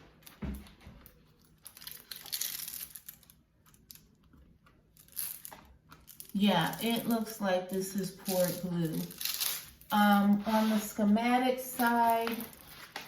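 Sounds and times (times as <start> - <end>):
plastic film crinkling: 1.2 - 3.9, 8.2 - 11.0, 11.7 - 13.0.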